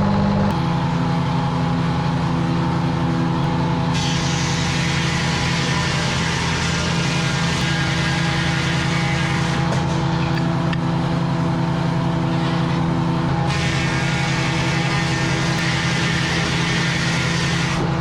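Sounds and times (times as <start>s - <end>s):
large engine droning: 0.0s - 18.0s
hiss: 3.9s - 10.4s, 12.3s - 17.9s.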